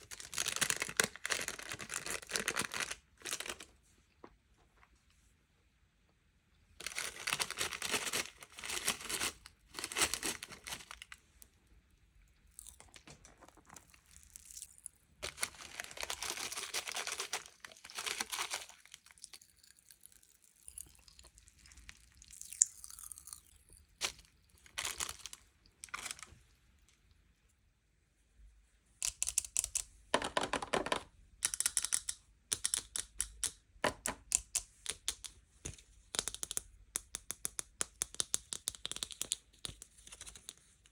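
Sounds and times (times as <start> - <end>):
packaging tearing and crinkling: 0.0 - 3.7, 6.8 - 11.2, 15.2 - 19.0, 24.0 - 26.3.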